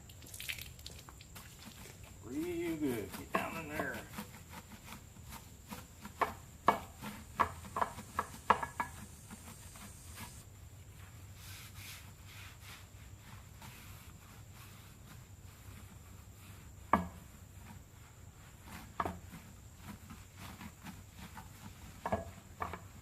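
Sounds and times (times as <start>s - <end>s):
brush scrubbing steel wheel: 0.2s - 23.0s.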